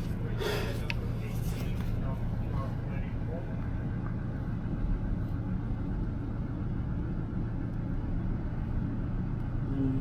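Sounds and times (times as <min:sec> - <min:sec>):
engine running steadily: 0:00.0 - 0:10.0.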